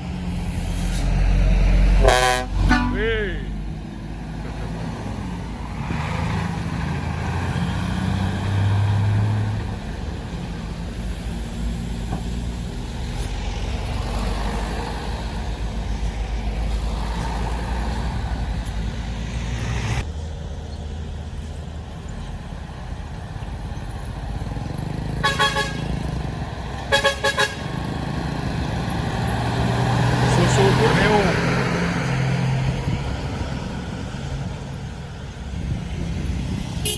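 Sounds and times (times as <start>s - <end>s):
truck engines running: 0.0s - 36.9s
vehicle horn tooting: 2.0s - 3.6s, 25.2s - 26.0s, 26.9s - 27.8s.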